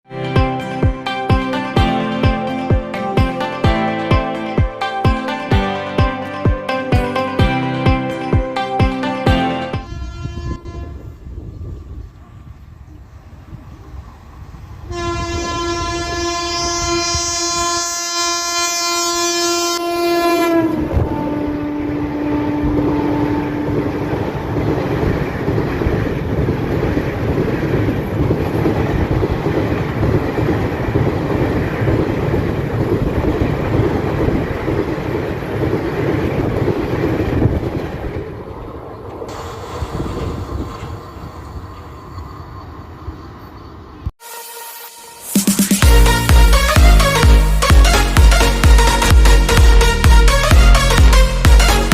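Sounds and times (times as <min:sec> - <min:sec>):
locomotive horn blast: 0:00.1 - 0:11.7, 0:14.9 - 0:24.7, 0:44.2 - 0:51.9
train coaches rumbling and clattering: 0:00.4 - 0:44.1.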